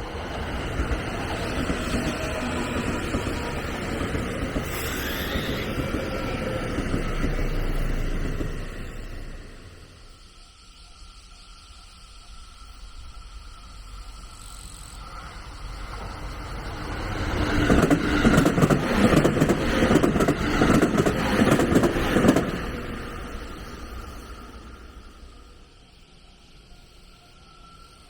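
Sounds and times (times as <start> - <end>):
train passing: 0.0 - 28.0
wheels clattering over rails: 15.9 - 23.9.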